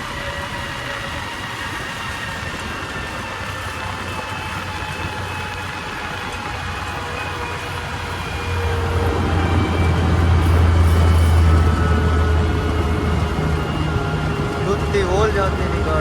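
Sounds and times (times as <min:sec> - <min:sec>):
diesel harvester engine humming: 0:00.0 - 0:16.0.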